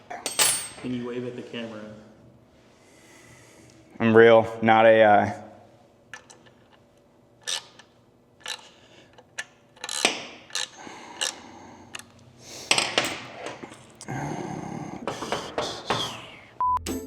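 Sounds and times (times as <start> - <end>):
metal tools clicking and clanking: 0.1 - 1.0, 7.4 - 12.1, 12.7 - 14.1.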